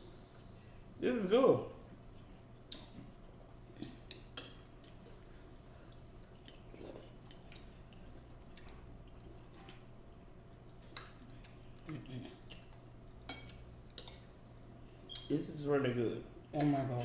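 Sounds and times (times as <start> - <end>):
chewing: 0.0 - 1.0, 1.7 - 15.4
faint low hum: 0.0 - 17.0
cutlery clicking on plate: 12.6 - 14.3.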